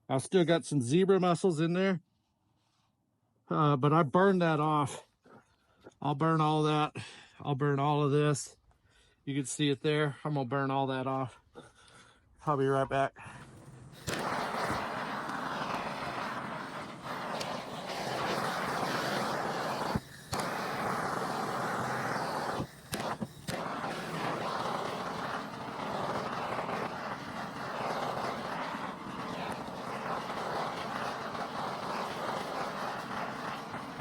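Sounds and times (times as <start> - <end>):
propane torch flame roaring: 13.3 - 34.0.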